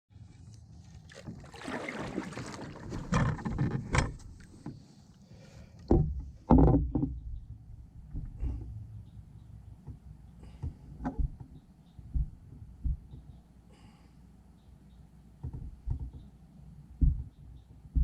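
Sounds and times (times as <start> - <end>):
paddle splashing through water: 0.8 - 4.9
sharp knocks: 10.6 - 13.3, 17.0 - 18.0.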